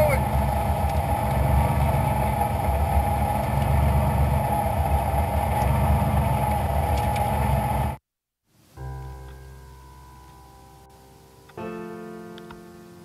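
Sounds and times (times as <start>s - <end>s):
rally car engine idling: 0.0s - 8.0s.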